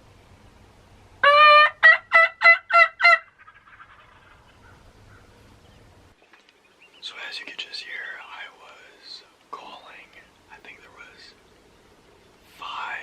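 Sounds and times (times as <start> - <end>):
turkey yelping: 1.2 - 5.3.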